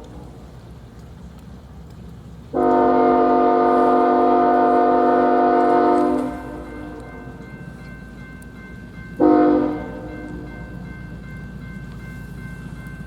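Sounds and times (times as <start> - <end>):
locomotive air horn blast: 2.6 - 7.1, 9.2 - 10.5.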